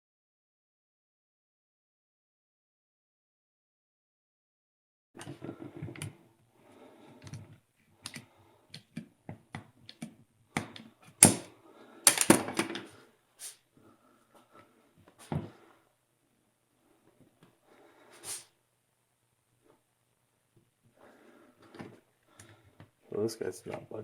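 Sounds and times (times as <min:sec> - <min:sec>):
metal parts clicking and knocking: 0:12.1 - 0:12.9.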